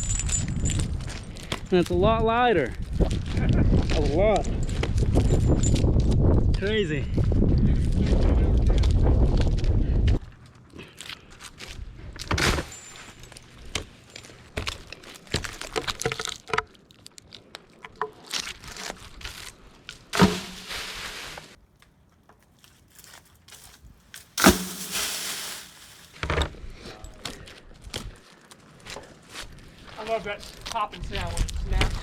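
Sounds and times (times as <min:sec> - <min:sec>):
branches rustling and crunching: 0:18.2 - 0:26.2.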